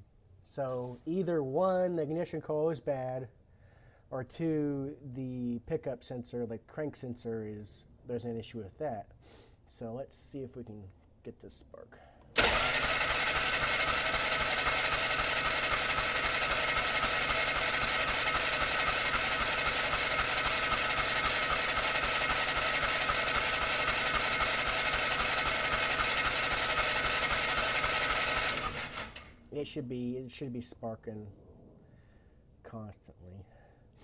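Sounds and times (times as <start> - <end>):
engine cranking on electric starter: 12.3 - 29.4.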